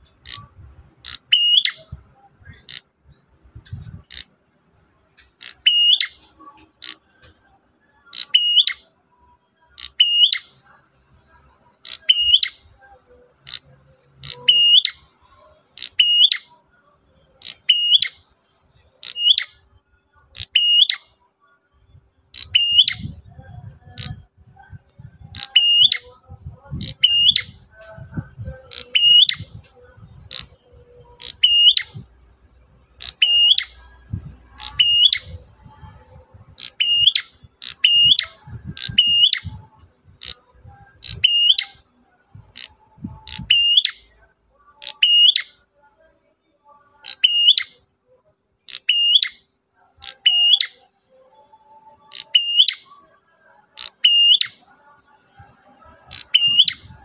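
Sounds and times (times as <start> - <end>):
bird chirping sharply: 0.1 - 2.8, 5.3 - 7.1, 8.0 - 8.8, 9.7 - 10.6, 11.8 - 12.6, 13.4 - 16.6, 17.3 - 18.2, 19.0 - 19.6, 20.3 - 21.1, 22.3 - 23.2, 25.2 - 26.2, 26.8 - 27.7, 28.6 - 32.1, 32.9 - 33.9, 34.5 - 35.5, 36.5 - 41.8, 42.5 - 44.1, 47.0 - 47.8, 48.7 - 49.4, 50.0 - 50.8, 52.0 - 52.9, 56.1 - 57.0.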